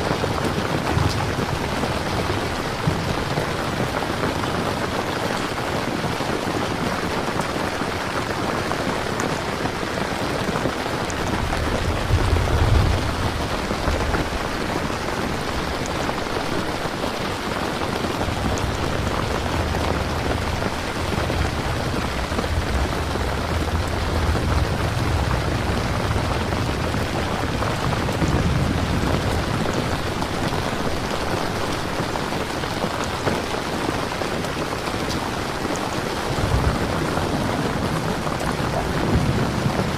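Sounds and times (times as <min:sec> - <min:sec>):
distant thunder rumbling: 0:00.0 - 0:05.1, 0:10.7 - 0:33.0, 0:36.0 - 0:39.9
steady rain falling: 0:00.0 - 0:39.9.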